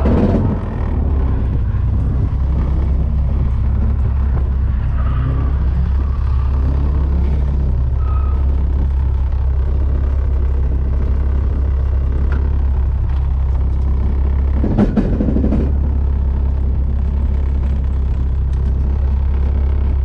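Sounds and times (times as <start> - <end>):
car engine drone: 0.0 - 20.0
transmission bang and clatter: 0.0 - 20.0.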